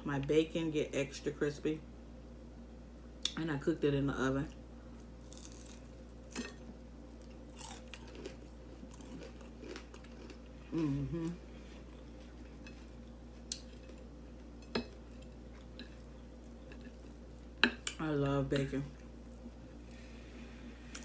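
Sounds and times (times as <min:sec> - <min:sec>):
crispy bacon being chewed: 0:04.5 - 0:18.0, 0:18.6 - 0:20.1.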